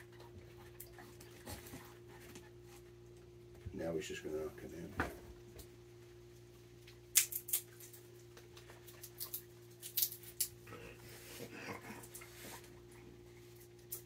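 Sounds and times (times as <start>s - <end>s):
peanut shells cracking: 6.8s - 10.6s.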